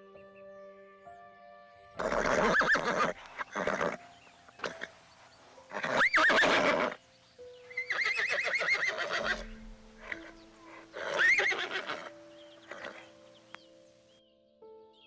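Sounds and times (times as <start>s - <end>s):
calm background music: 0.0s - 15.0s
horse whinnying: 2.0s - 4.0s, 4.6s - 4.9s, 5.7s - 7.0s, 7.7s - 13.1s.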